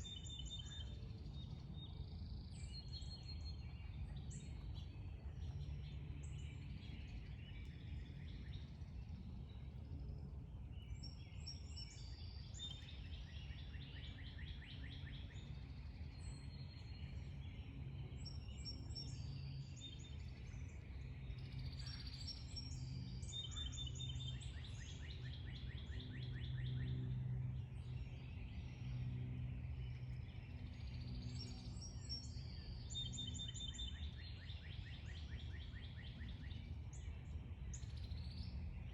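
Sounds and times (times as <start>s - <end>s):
low background hum: 0.0s - 38.9s
songbirds chirping and trilling: 0.0s - 38.9s.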